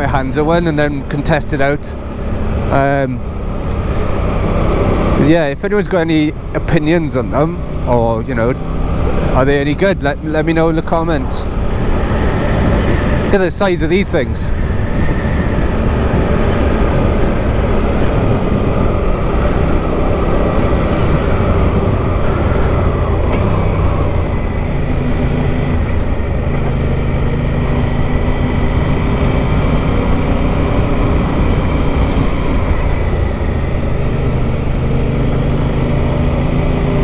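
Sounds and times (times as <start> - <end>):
motorcycle engine running: 0.0 - 37.0
wind rush: 8.6 - 36.6.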